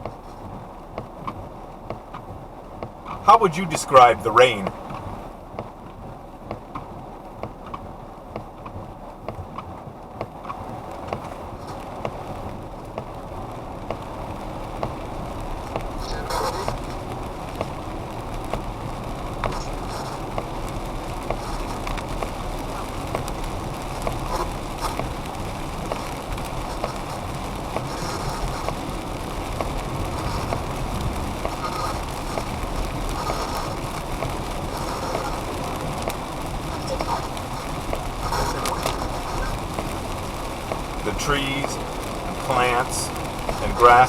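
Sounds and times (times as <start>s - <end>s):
car cabin noise while driving: 0.0s - 44.0s
rain: 0.0s - 44.0s
radio static crackling: 3.3s - 4.8s, 15.9s - 17.2s, 19.4s - 20.3s, 25.9s - 29.3s, 30.0s - 44.0s.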